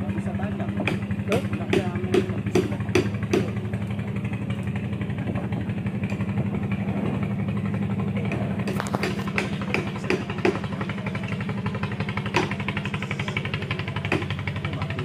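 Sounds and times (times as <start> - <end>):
small engine running: 0.0 - 15.0
sharp knocks: 0.8 - 3.6, 8.3 - 10.8, 12.2 - 12.7, 14.0 - 14.4.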